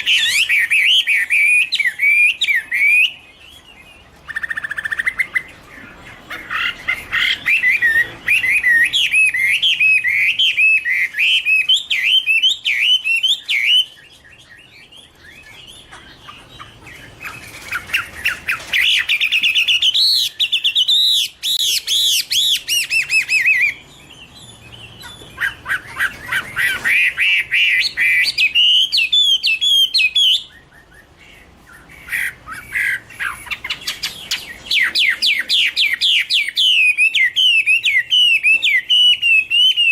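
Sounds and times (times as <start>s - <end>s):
bird singing looping notes: 0.0s - 39.9s.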